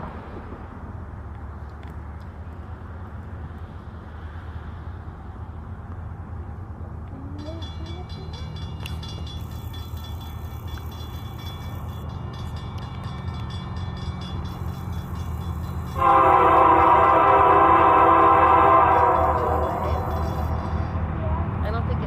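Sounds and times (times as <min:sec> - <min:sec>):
train locomotive rumbling: 0:00.0 - 0:22.0
train air horn chord: 0:14.9 - 0:20.9.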